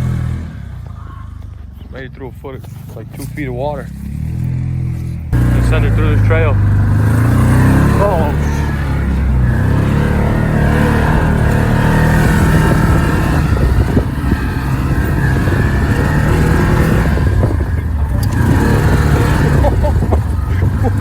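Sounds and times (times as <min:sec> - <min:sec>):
engine running under throttle: 0:00.0 - 0:01.6, 0:02.6 - 0:21.0
knocks and rattles: 0:06.6 - 0:21.0.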